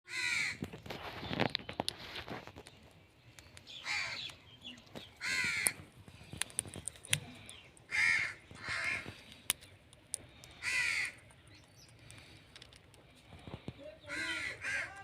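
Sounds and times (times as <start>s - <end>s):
sharp clicks: 2.6s - 13.8s.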